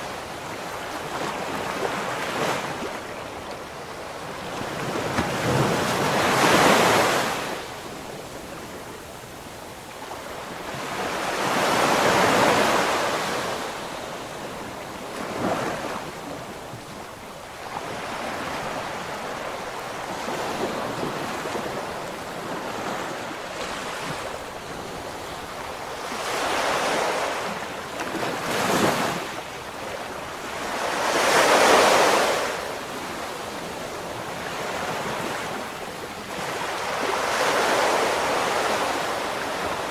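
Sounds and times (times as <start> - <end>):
ocean waves breaking: 0.0 - 8.6, 17.6 - 39.9.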